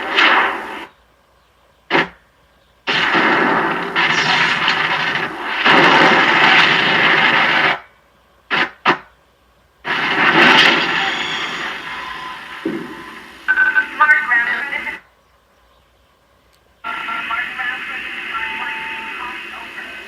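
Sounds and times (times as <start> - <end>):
harsh noise bursts: 0.0 - 0.9, 1.9 - 2.2, 2.9 - 7.9, 8.5 - 9.1, 9.8 - 15.0, 16.8 - 20.0
sharp hits: 2.9 - 7.8, 9.9 - 13.5.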